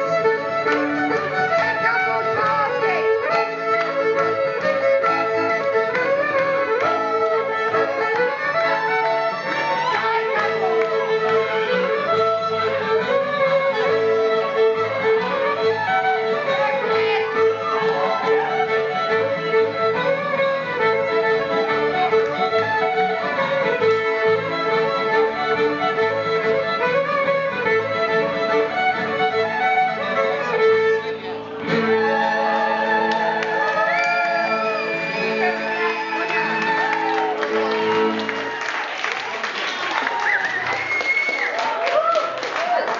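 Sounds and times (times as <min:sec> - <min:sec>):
fiddle folk dance music: 0:00.0 - 0:42.9.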